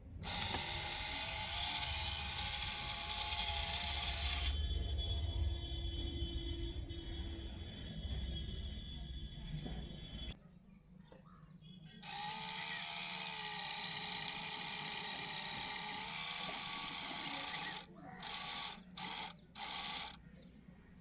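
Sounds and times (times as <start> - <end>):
small motor whirring: 0.2 - 4.6, 12.0 - 20.2.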